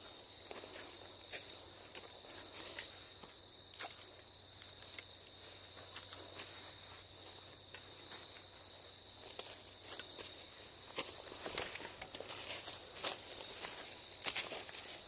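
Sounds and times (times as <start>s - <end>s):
footsteps crunching dry leaves: 0.0s - 15.0s.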